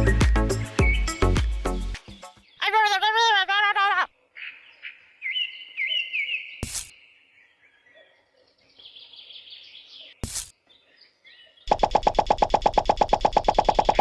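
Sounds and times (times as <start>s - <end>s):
birds chirping: 0.0s - 3.0s, 4.2s - 11.9s.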